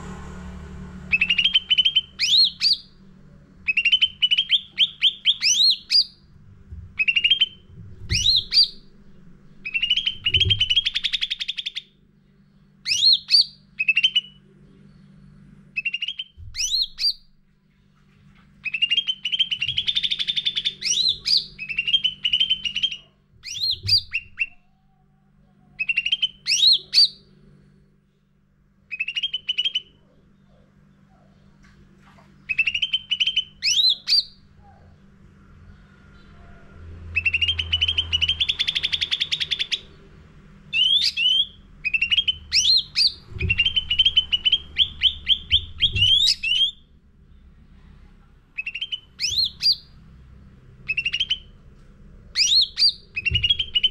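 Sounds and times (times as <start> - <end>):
faint low hum: 0.0 - 53.9
bird singing whistled notes: 1.1 - 3.0, 3.7 - 6.2, 7.0 - 8.9, 9.6 - 11.9, 12.8 - 14.4, 15.0 - 17.3, 18.6 - 24.8, 25.8 - 27.3, 28.9 - 30.1, 32.5 - 34.4, 37.1 - 40.0, 40.7 - 46.8, 48.6 - 50.0, 50.8 - 51.5, 52.4 - 53.9.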